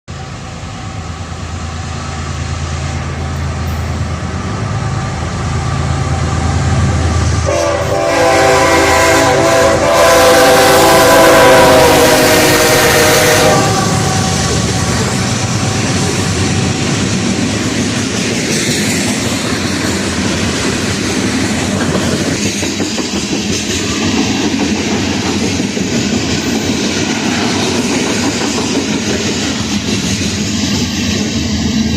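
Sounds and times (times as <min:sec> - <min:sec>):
locomotive engine rumble: 0:00.1 - 0:23.4
train air horn: 0:07.4 - 0:15.0.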